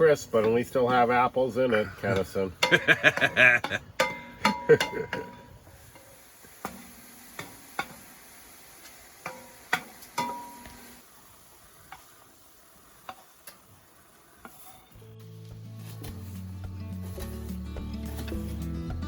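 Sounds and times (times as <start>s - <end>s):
spoon tapping against a pot: 9.2s - 10.8s.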